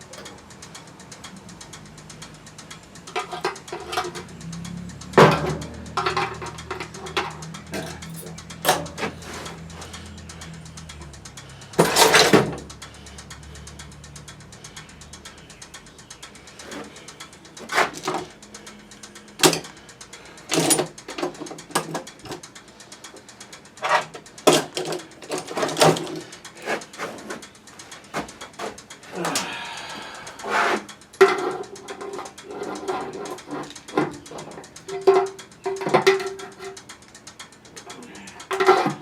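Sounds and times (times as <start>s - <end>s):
metal tools clicking and knocking: 0.0s - 39.0s
metal scrape: 2.6s - 13.2s, 16.4s - 22.4s, 23.8s - 36.8s.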